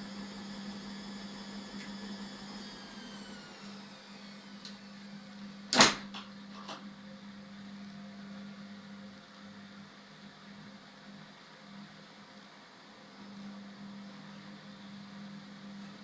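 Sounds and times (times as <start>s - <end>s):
washing machine running: 0.0s - 16.0s
loud sharp clunk: 5.7s - 6.8s.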